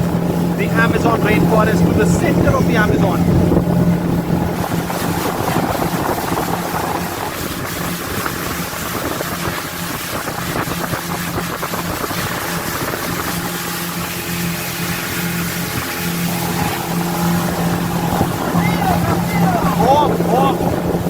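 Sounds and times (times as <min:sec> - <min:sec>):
outboard motor running: 0:00.0 - 0:21.0
wind buffeting microphone: 0:00.0 - 0:21.0.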